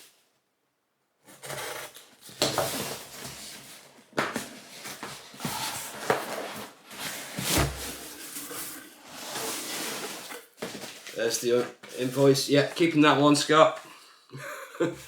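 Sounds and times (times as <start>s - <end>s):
packaging rustling and crinkling: 1.7s - 12.2s.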